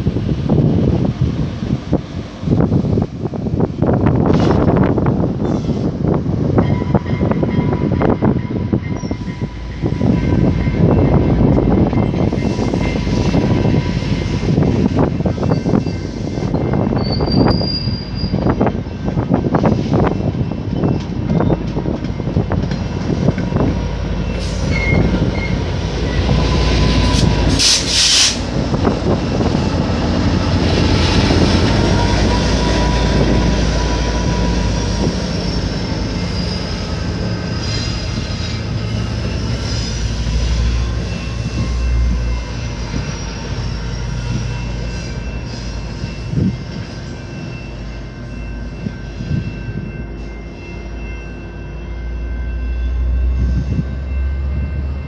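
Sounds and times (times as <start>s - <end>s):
train rumbling: 0.0s - 55.0s
train wheel squeal: 5.4s - 5.9s, 6.5s - 55.0s
short sharp hiss: 27.1s - 28.5s.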